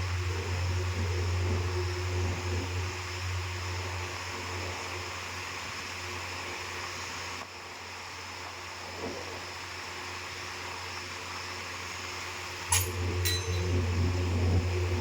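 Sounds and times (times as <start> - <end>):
steady low hum: 0.0 - 7.4, 8.2 - 15.0
faint high steady tone: 12.7 - 14.6.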